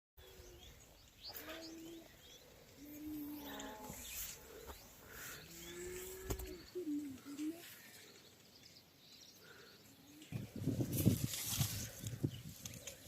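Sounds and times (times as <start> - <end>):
doves cooing: 0.2 - 8.2
small birds chirping: 0.2 - 13.0.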